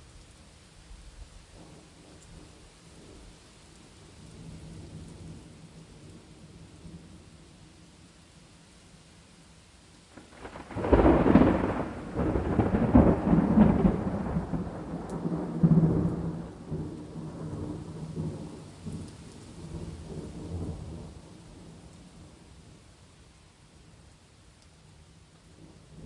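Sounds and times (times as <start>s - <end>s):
rain hiss: 0.0s - 26.0s
thunder rumbling: 10.1s - 22.4s.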